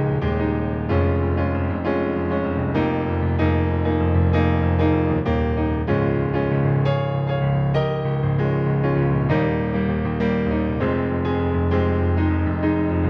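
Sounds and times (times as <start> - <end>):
piano chords: 0.0 - 13.0.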